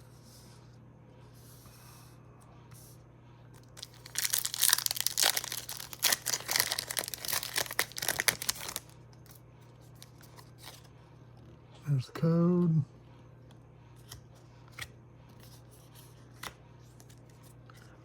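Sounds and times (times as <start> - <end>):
foil pack tearing and crinkling: 3.7 - 9.4.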